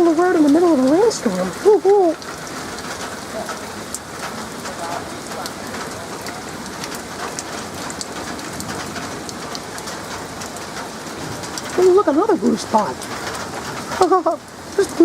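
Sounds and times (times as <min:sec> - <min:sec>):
hard rain: 0:00.0 - 0:15.0.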